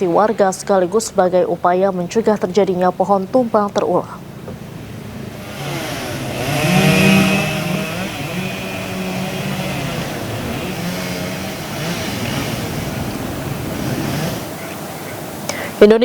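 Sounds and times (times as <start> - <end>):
chainsaw running and cutting: 5.0 - 14.8.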